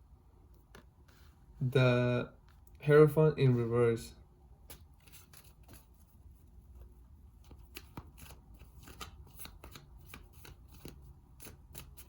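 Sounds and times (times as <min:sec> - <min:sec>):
cards shuffling and flicking: 0:00.6 - 0:01.2, 0:04.6 - 0:12.0.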